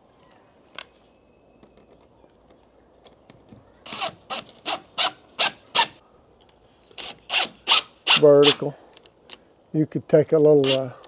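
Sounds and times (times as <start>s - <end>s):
scraping strokes against wood: 3.9s - 6.0s, 7.0s - 8.7s, 10.6s - 10.9s.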